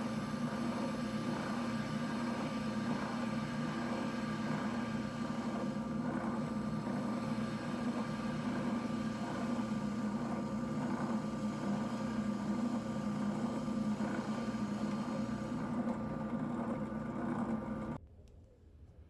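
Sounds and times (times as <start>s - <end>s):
spindle sander sanding wood: 0.0s - 18.0s.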